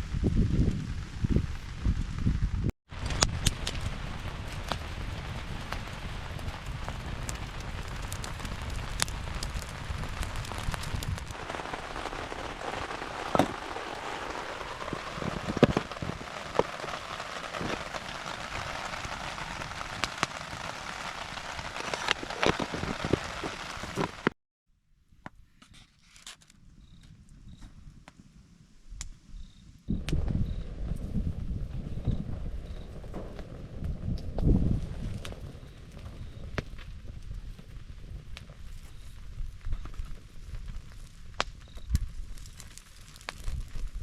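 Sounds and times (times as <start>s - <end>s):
rain falling: 0.0s - 24.4s
raindrops ticking on a surface: 3.0s - 24.3s.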